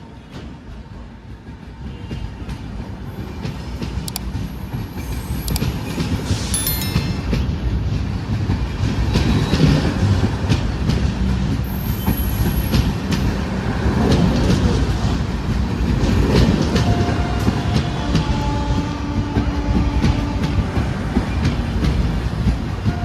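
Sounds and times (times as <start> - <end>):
train rumbling on rails: 0.0 - 23.0
train wheels clicking: 3.2 - 7.5.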